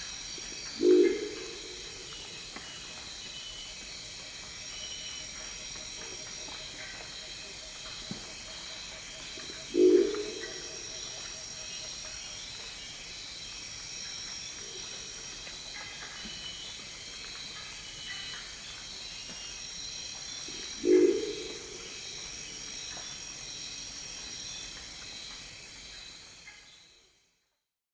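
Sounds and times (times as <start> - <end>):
insect chorus: 0.0 - 27.2
owl gruff croaking call: 0.8 - 2.1, 9.7 - 10.8, 20.8 - 21.9.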